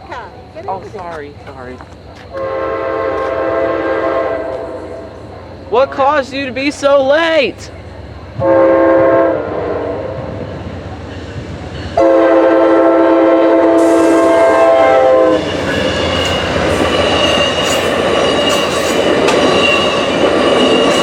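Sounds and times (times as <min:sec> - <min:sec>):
train wheels rumbling on rails: 0:00.0 - 0:21.0
train chime horn: 0:11.8 - 0:18.8
high wheel squeal: 0:13.8 - 0:21.0.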